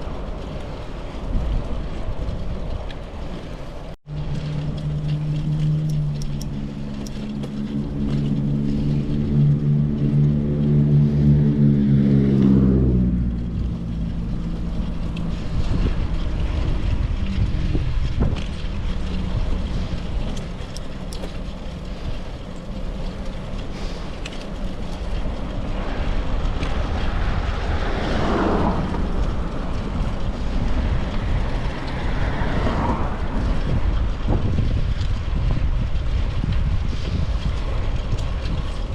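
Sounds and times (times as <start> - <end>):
road and wind noise: 0.0 - 38.9
vehicles swishing past: 0.0 - 38.9
passing vehicle engine hum: 4.1 - 38.9.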